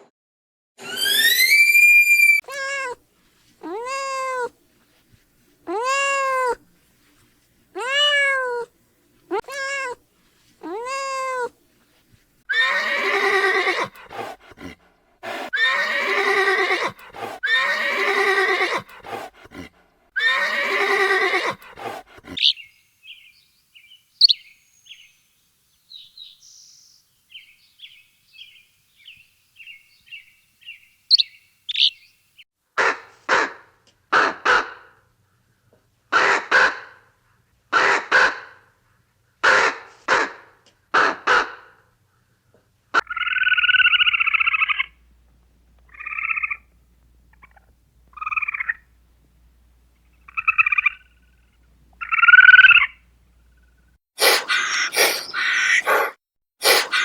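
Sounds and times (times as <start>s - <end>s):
animal calls rising and falling: 0.8s - 3.0s, 12.5s - 14.4s, 15.3s - 19.3s, 20.2s - 22.6s, 54.2s - 57.0s
faint bird chirps: 22.4s - 32.2s.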